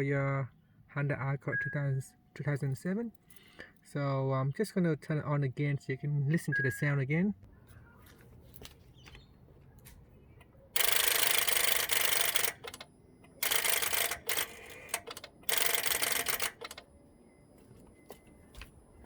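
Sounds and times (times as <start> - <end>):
starter solenoid chattering: 10.3 - 19.0.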